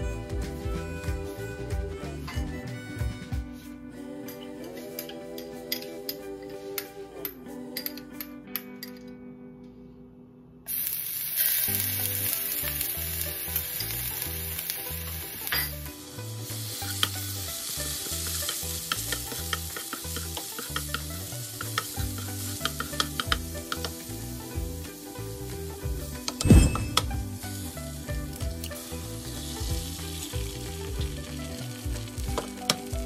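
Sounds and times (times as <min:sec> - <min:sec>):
food sizzling in frying pan: 0:10.7 - 0:33.0.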